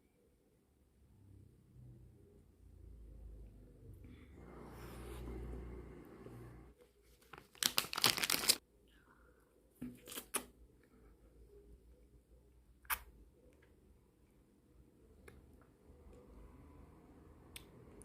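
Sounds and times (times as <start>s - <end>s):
plastic wrapper rustling: 7.1s - 8.6s.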